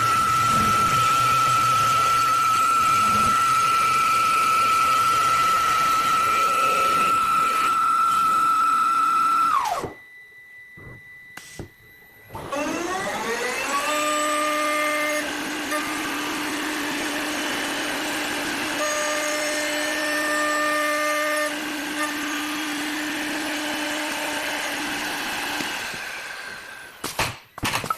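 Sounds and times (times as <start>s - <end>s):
wood lathe motor whine: 0.0s - 27.0s.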